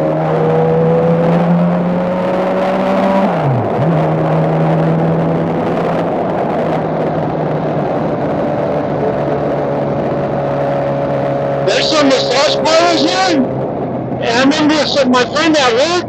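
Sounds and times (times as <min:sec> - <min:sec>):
wind noise: 0:03.3 - 0:15.4.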